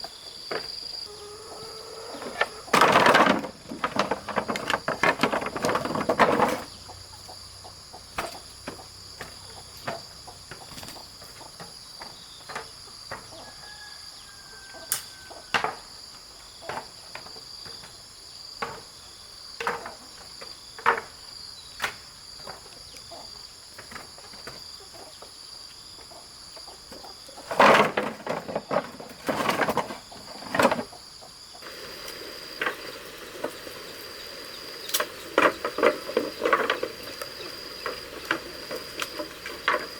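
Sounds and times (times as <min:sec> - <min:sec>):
insects shrilling: 0:30.5 - 0:39.9.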